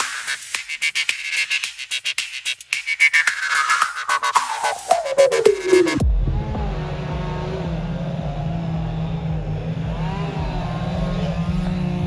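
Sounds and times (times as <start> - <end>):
faint rising and falling pitch: 5.9 - 12.0.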